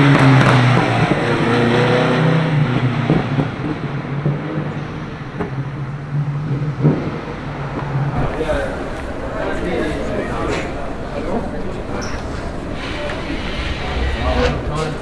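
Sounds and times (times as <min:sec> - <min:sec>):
car engine running low revs: 0:08.2 - 0:15.0.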